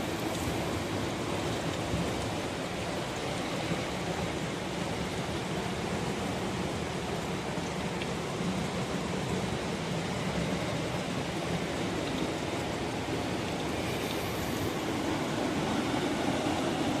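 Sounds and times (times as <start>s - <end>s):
steady rushing noise: 10.1s - 17.0s.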